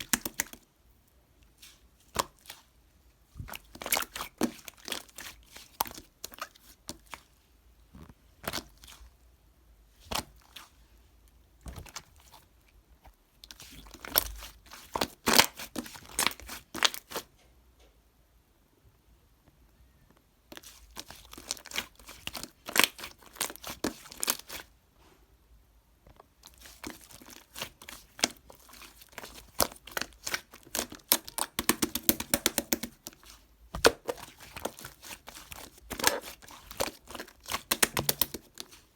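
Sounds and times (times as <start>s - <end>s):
crinkly material crackling: 26.1s - 38.9s.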